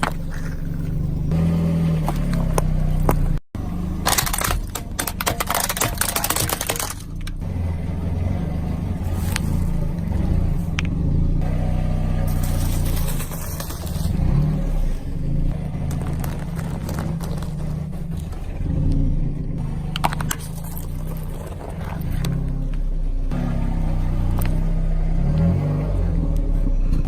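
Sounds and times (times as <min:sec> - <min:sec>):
sharp crunching clicks: 0:04.0 - 0:07.4.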